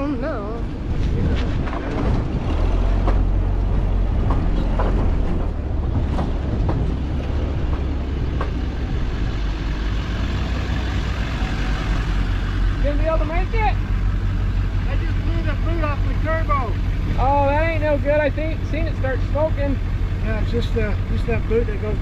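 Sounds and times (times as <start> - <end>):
tracked vehicle engine rumble: 0.0 - 22.0
knocks and rattles: 0.9 - 9.6.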